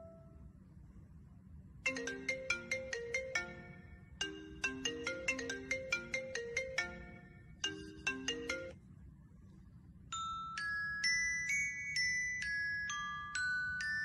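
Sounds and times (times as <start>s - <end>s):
marimba ringtone melody: 1.9s - 8.8s.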